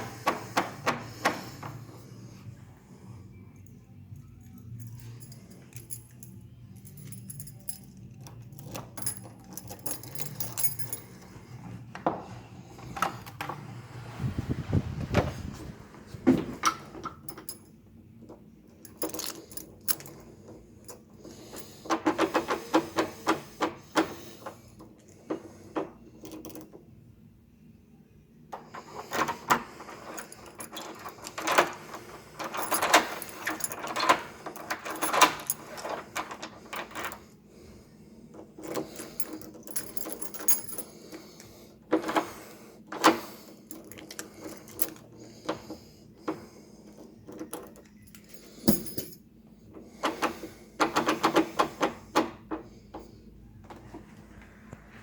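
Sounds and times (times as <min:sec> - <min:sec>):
low steady hum: 0:00.0 - 0:55.0
small metal objects jingling: 0:03.6 - 0:11.3.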